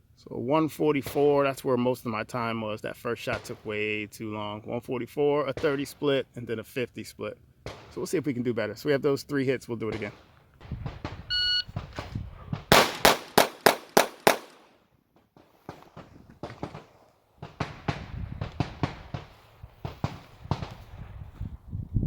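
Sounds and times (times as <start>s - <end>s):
pistol shots: 3.3s - 3.9s, 5.5s - 6.2s, 7.6s - 8.3s, 9.8s - 21.0s.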